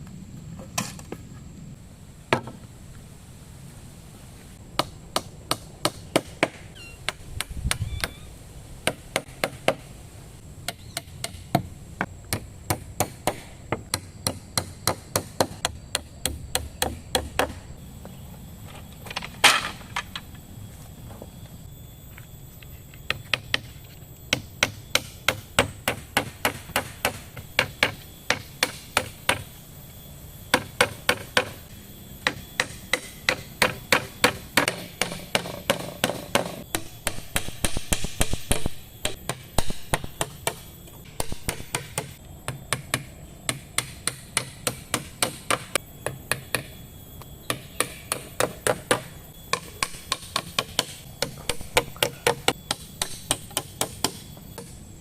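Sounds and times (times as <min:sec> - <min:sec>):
hand tool striking wood: 0:32.2 - 0:46.7.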